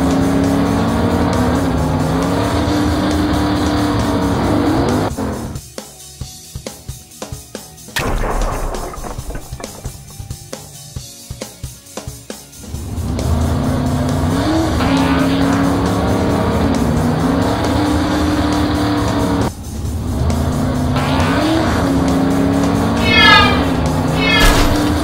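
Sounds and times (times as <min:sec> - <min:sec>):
music: 0:03.7 - 0:25.0
cartoon car engine effect: 0:22.9 - 0:25.0.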